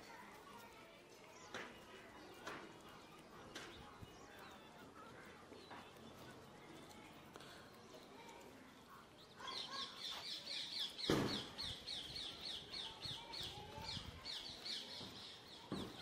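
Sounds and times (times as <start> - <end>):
thump: 11.0 - 11.6.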